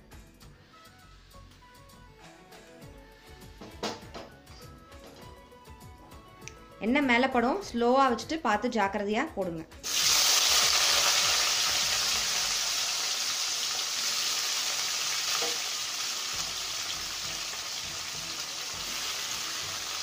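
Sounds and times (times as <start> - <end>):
vegetables sizzling in hot oil: 9.8 - 20.0.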